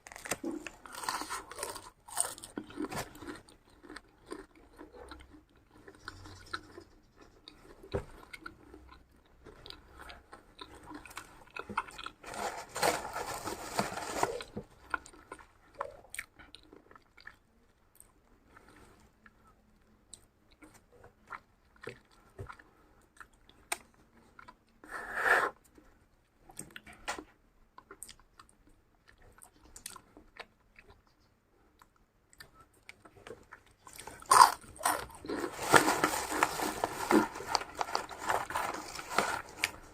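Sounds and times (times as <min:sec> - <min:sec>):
person chewing crunchy food: 0:00.0 - 0:19.2, 0:27.8 - 0:39.9.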